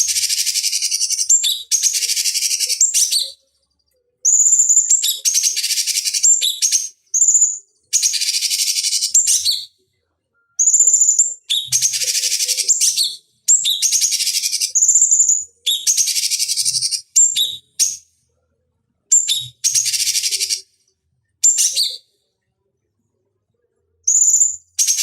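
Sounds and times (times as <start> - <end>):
bird chattering and whistling: 0.0 - 3.4, 4.3 - 9.7, 10.6 - 18.0, 19.1 - 20.7, 21.4 - 22.1, 24.1 - 25.0.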